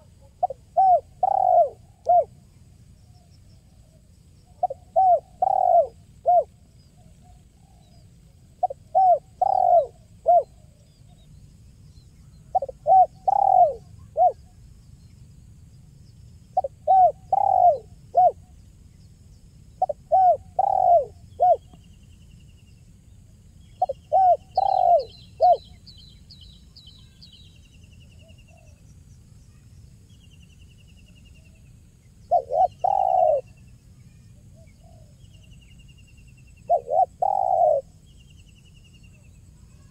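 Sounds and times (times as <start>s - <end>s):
dove cooing: 0.0s - 2.4s, 3.9s - 6.6s, 8.5s - 10.6s, 12.4s - 14.6s, 16.6s - 18.5s, 19.8s - 21.8s, 23.8s - 25.8s, 32.2s - 33.6s, 36.7s - 38.0s
small bird chirping: 0.0s - 39.9s.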